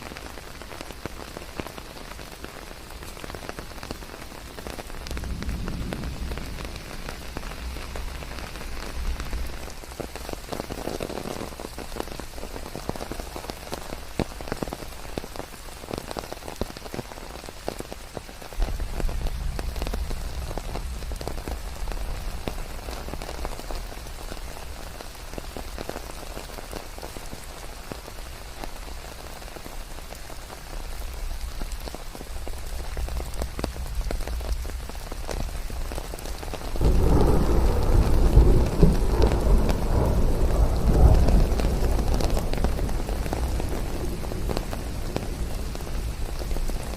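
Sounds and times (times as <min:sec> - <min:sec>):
rain falling on leaves: 0:00.0 - 0:46.9
deep low rumble: 0:05.0 - 0:09.7.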